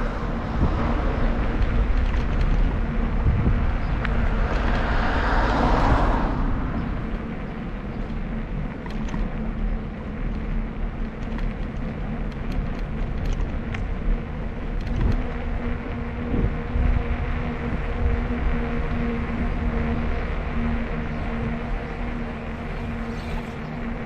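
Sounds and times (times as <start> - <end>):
vehicle passing: 0.0 - 8.4
wind rumbling on microphone: 0.0 - 24.0.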